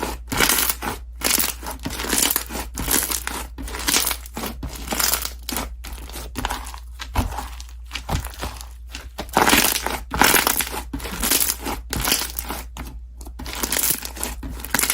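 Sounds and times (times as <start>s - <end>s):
slime squishing and popping: 6.4s - 12.6s.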